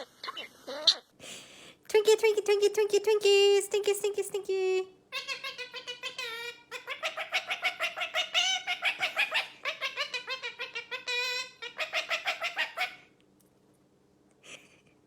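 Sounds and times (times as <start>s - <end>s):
parrot clucking calls: 5.1s - 13.1s.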